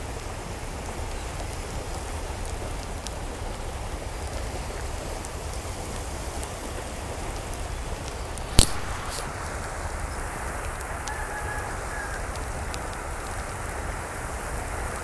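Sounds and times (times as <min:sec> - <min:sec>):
raindrop ticks: 0:00.0 - 0:15.0
steady rain falling: 0:00.0 - 0:15.0
loud sharp click: 0:08.5 - 0:09.3.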